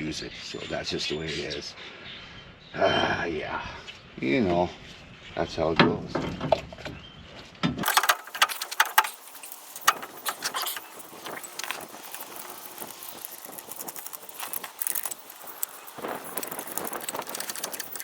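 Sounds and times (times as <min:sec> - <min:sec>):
metallic clinks and rattles of tools: 0:07.8 - 0:18.0.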